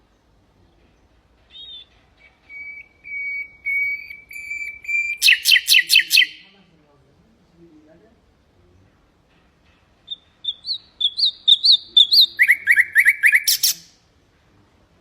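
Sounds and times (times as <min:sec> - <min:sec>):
nightingale singing: 0:01.5 - 0:06.5, 0:10.0 - 0:14.0.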